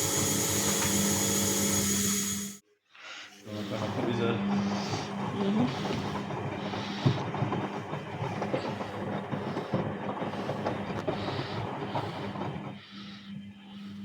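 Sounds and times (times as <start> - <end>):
washing machine rattling: 3.5 - 14.0.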